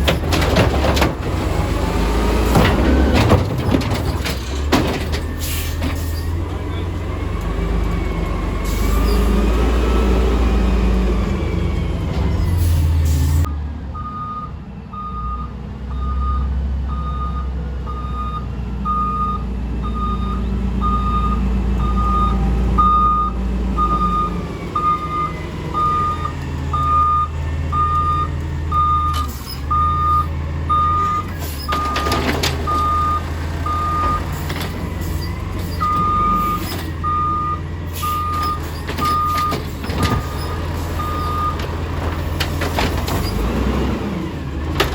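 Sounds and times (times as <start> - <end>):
reversing alarm beeps: 14.0 - 34.3, 35.8 - 40.4, 41.0 - 41.6.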